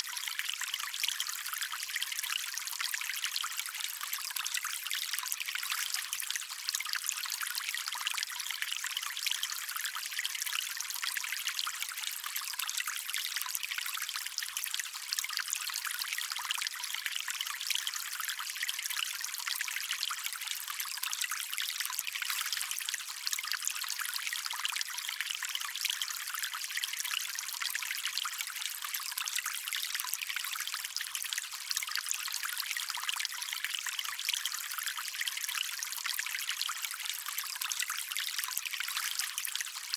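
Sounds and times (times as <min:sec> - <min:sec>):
stream of water trickling: 0:00.0 - 0:39.9.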